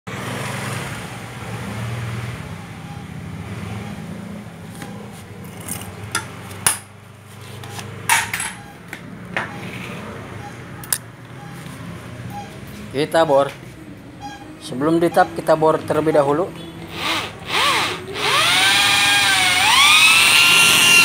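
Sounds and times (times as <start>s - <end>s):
metallic clinks and knocks: 8.1s - 8.7s.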